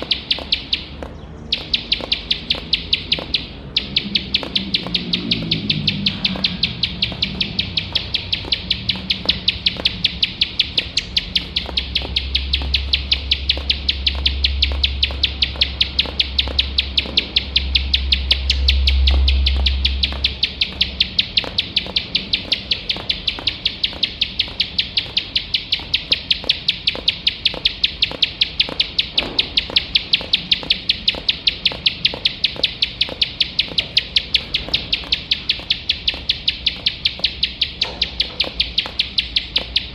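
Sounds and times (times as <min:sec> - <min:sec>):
prinia singing rapid notes: 0:00.0 - 0:39.9
low rumble: 0:04.0 - 0:23.3.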